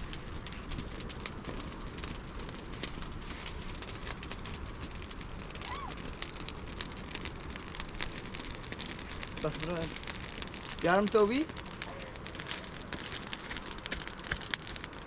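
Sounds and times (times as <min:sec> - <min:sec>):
hiss with crackles and pops: 0:00.0 - 0:15.0.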